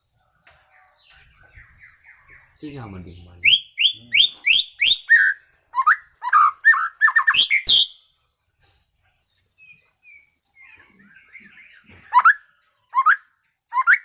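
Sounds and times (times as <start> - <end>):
soft bird twittering: 0.0 - 8.2, 9.0 - 14.0
songbird whistling: 3.4 - 8.0, 9.6 - 14.0.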